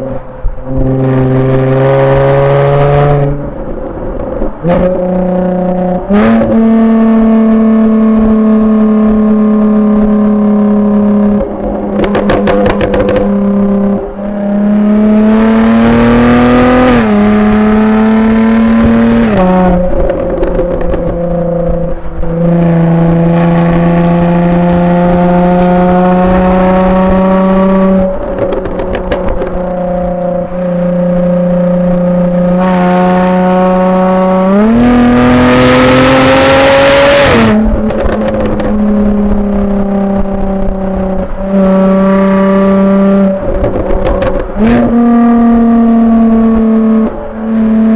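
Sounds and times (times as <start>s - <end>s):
car engine revving: 0.0s - 47.9s
exhaust pops and crackles: 11.2s - 13.8s, 18.8s - 22.8s, 26.0s - 30.7s, 37.1s - 41.6s, 43.2s - 45.3s.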